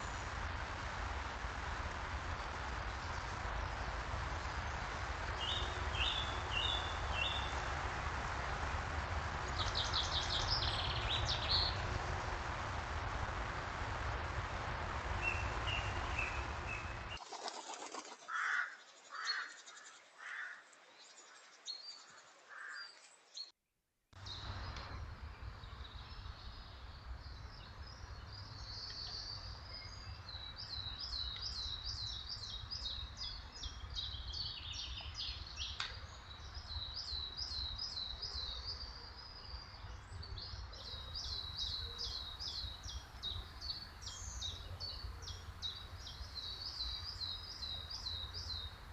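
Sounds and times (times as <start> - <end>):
steady low rumble: 0.0 - 17.2
pigeon wing flaps: 15.1 - 18.5.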